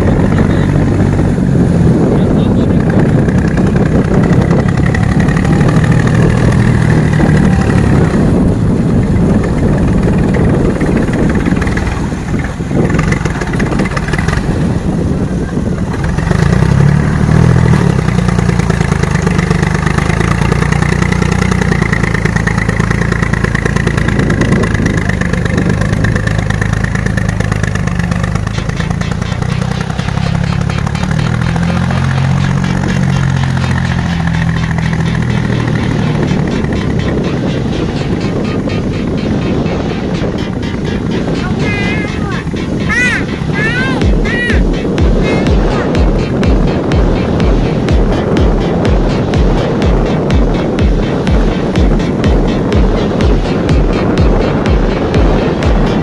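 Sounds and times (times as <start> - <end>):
heavy machine engine running: 0.0 - 56.0.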